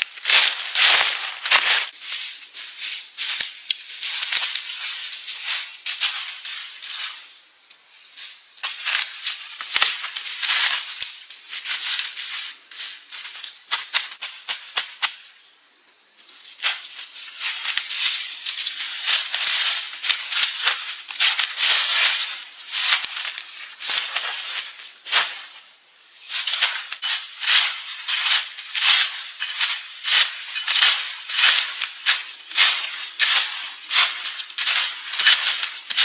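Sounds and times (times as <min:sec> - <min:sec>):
dry leaves and twigs crackling: 0:00.0 - 0:15.5, 0:16.2 - 0:36.0.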